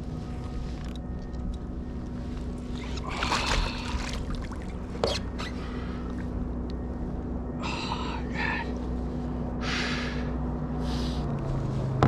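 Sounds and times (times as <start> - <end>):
motorboat engine droning: 0.0 - 12.0
water splashing: 2.8 - 5.0.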